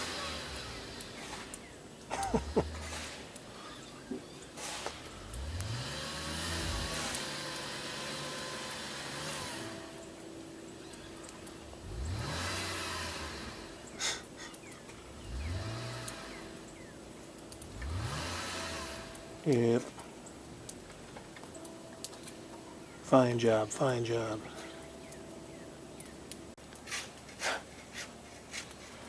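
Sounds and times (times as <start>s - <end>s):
wheels spinning on snow: 0.0s - 19.9s
car engine revving: 0.0s - 26.5s.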